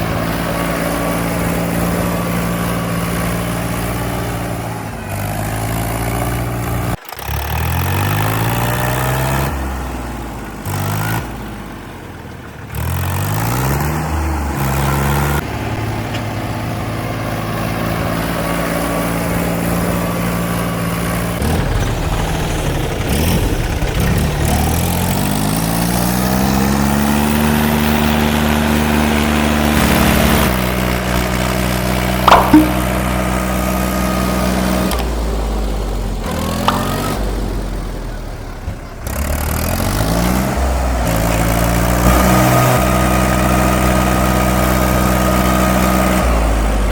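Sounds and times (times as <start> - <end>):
diesel engines revving: 0.0 - 46.9
sharp metallic clank: 32.3 - 33.1.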